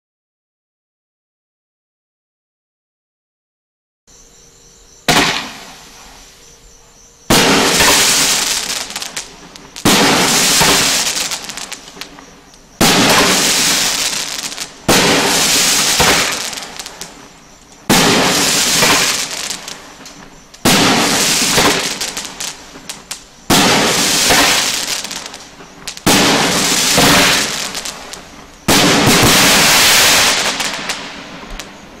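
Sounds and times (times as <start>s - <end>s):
firework crackling: 5.0s - 6.6s, 7.2s - 32.0s
firework shots banging: 5.1s - 6.0s, 7.3s - 31.8s.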